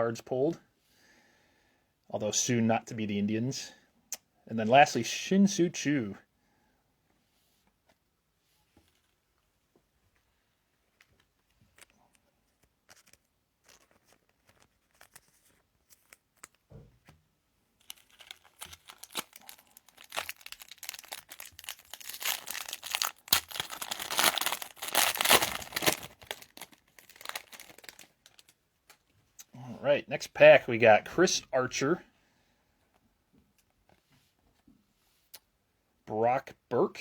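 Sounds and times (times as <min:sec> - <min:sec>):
foil wrapper tearing and crinkling: 0:12.6 - 0:16.7, 0:17.8 - 0:29.0.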